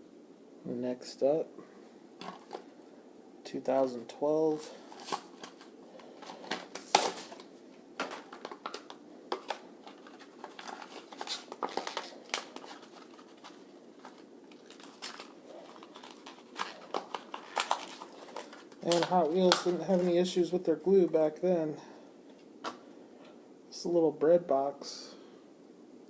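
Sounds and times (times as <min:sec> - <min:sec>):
plastic blister pack crackling: 0:04.2 - 0:20.4
cardboard tearing: 0:06.2 - 0:07.4, 0:09.4 - 0:19.7.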